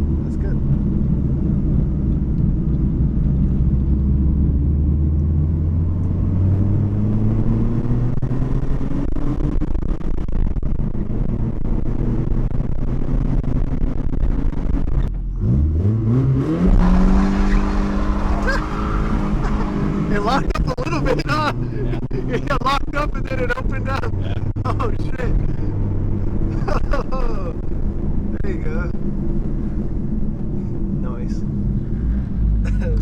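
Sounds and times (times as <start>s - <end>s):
car engine running: 0.0s - 33.0s.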